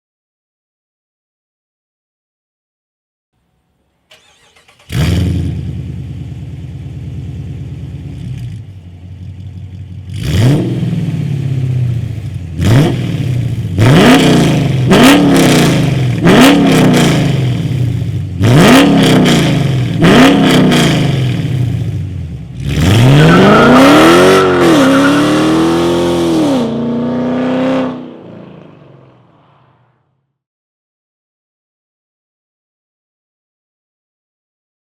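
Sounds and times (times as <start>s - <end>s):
car engine idling and revving: 4.1s - 29.8s
car engine starting: 4.1s - 29.8s.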